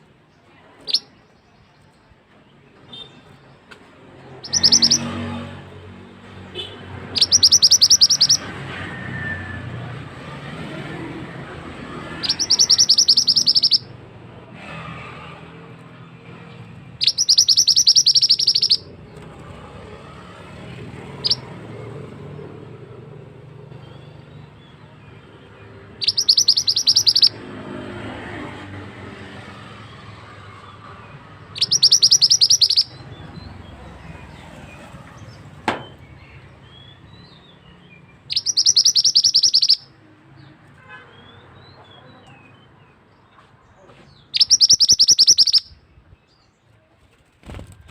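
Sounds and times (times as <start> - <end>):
bird trilling: 4.4 - 5.4, 6.6 - 9.6, 11.3 - 14.0, 17.0 - 19.0, 21.1 - 21.6, 25.2 - 27.5, 30.2 - 34.4, 35.3 - 40.0, 44.3 - 45.8.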